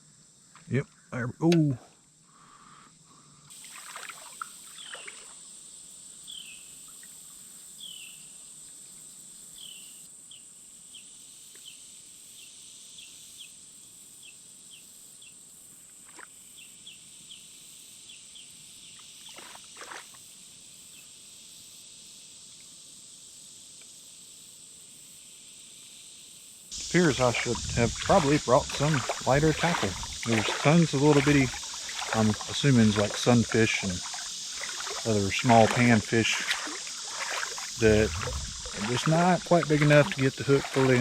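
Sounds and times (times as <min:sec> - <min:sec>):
high insect drone: 0:26.8 - 0:41.0.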